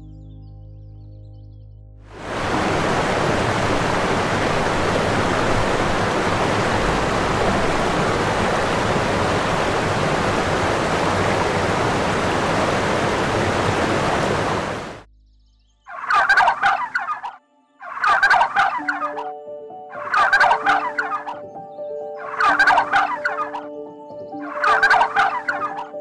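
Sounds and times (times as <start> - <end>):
steady rushing noise: 2.2 - 15.1
pulsing animal calls: 20.0 - 21.4, 22.2 - 23.7, 24.5 - 26.0.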